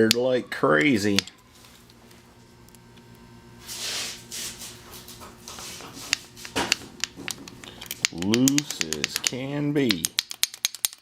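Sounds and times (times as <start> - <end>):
metallic clicks and clinks: 7.6 - 11.0.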